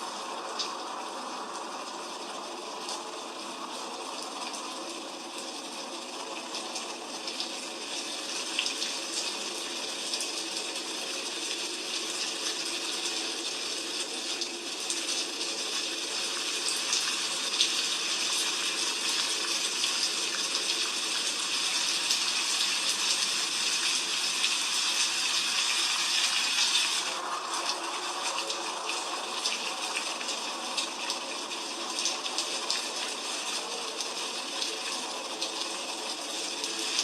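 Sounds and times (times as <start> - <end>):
heavy rain hissing: 15.2 - 37.0.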